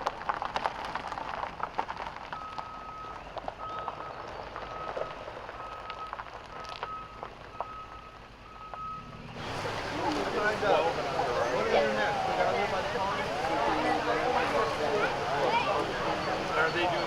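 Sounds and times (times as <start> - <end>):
reversing alarm beeping: 2.4 - 17.0
faint steady hiss: 9.2 - 17.0.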